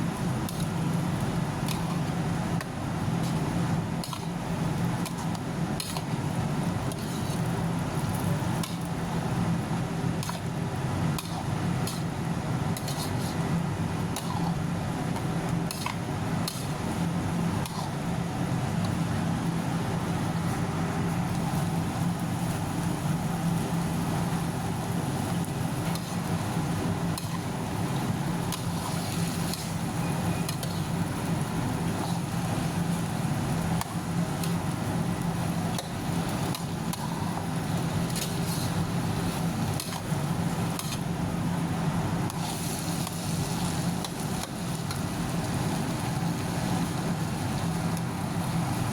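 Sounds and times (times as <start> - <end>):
food sizzling: 21.3 - 48.9.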